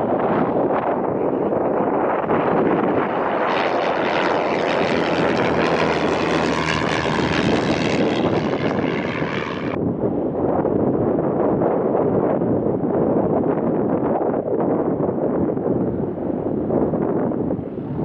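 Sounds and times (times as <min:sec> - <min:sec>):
propeller airplane engine drone: 0:00.0 - 0:10.8.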